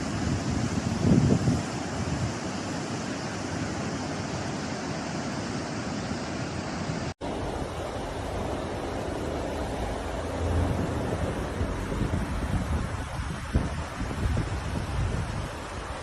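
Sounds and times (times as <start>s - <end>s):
wind on microphone: 0.0s - 2.5s, 7.2s - 16.0s
floodwater rushing: 0.0s - 16.0s.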